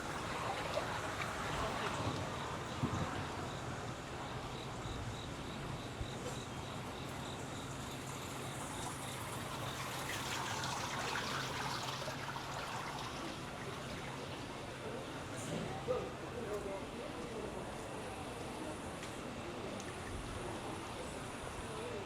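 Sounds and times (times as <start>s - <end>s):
flowing water: 0.0s - 4.5s, 6.8s - 15.8s
insect chirping in high pips: 2.3s - 12.3s.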